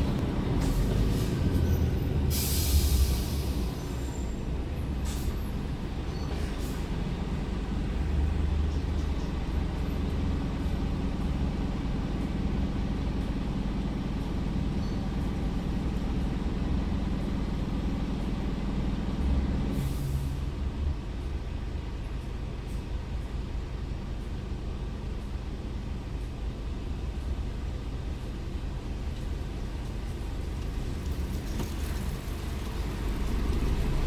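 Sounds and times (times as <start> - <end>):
diesel truck engine droning: 0.0 - 34.0
short air hiss: 2.3 - 3.6.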